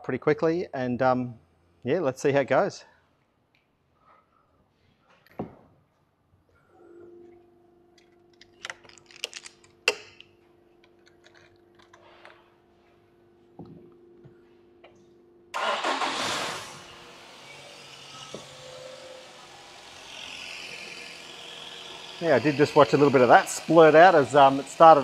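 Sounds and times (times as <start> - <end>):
car engine starting and idling: 15.6 - 23.0
starter motor cranking: 15.6 - 25.0.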